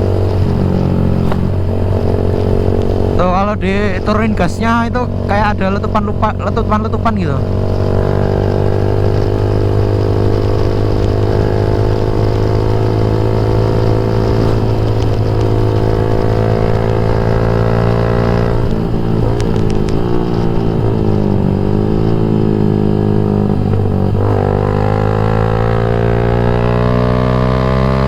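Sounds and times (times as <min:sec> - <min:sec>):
exhaust popping: 0:00.0 - 0:28.0
motorcycle engine running: 0:00.0 - 0:28.0.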